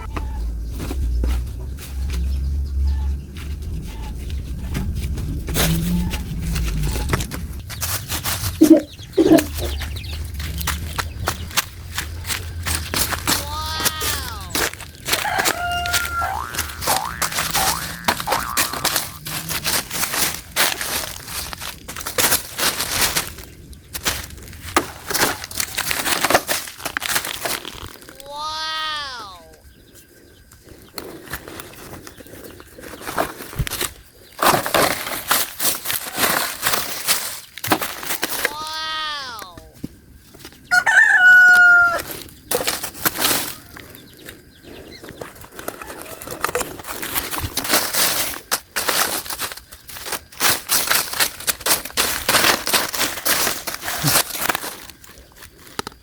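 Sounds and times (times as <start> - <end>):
rustling: 0.0 - 40.6, 42.0 - 56.0
trash crunching and crinkling: 0.0 - 56.0
rooster crowing: 13.4 - 19.2, 40.7 - 42.1.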